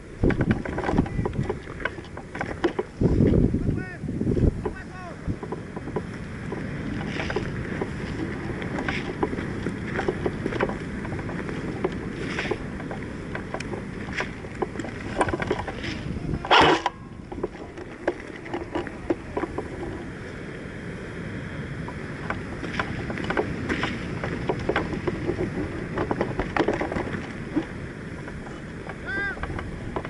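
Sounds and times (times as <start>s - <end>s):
microphone handling clicks and rustles: 0.0s - 20.1s, 21.8s - 30.0s
wind rumble on microphone: 0.0s - 30.0s
loud rustle or scrape: 6.8s - 12.8s, 14.1s - 17.0s.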